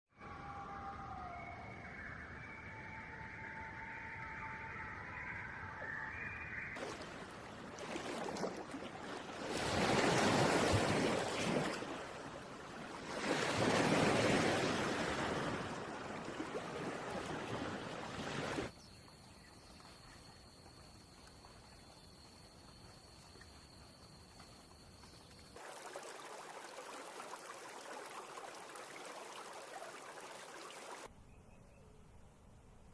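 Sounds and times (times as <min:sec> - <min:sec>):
waves rushing in: 0:06.5 - 0:18.7.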